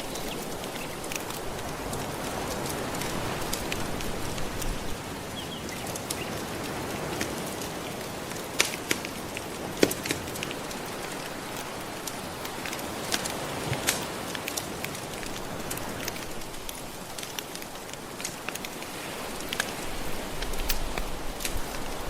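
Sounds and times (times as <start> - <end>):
soft ocean waves: 0.0 - 22.0
wood fire crackling and popping: 6.7 - 22.0.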